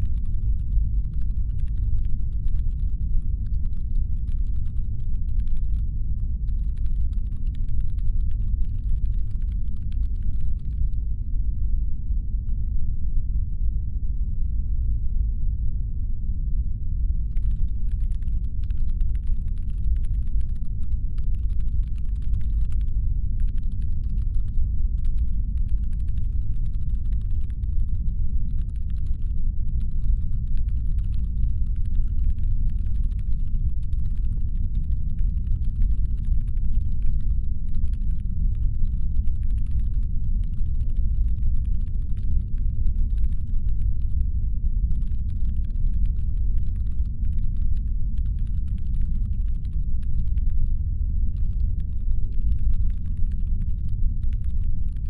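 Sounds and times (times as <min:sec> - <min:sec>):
deep engine hum rumble: 0:00.0 - 0:13.2.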